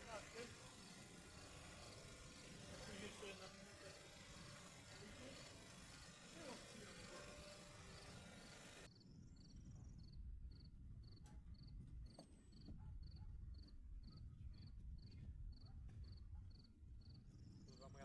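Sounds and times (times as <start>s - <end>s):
hiss: 0.0s - 8.9s
faint cricket chirping: 6.5s - 18.0s.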